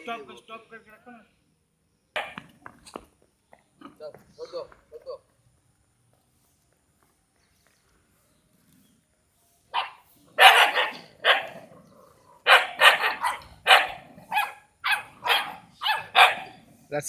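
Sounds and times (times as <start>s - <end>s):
dog barking: 2.2s - 2.4s, 9.7s - 11.6s, 12.4s - 16.6s.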